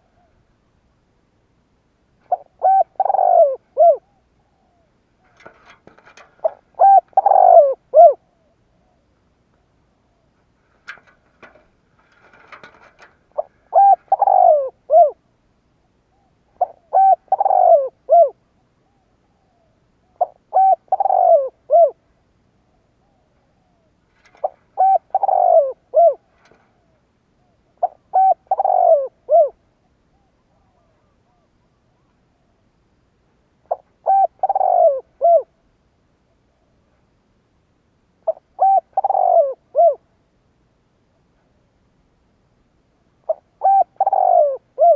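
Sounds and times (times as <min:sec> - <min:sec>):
dove cooing: 0:02.2 - 0:15.3, 0:16.1 - 0:22.0, 0:23.0 - 0:32.1, 0:33.6 - 0:35.6, 0:38.2 - 0:40.1, 0:43.2 - 0:44.9.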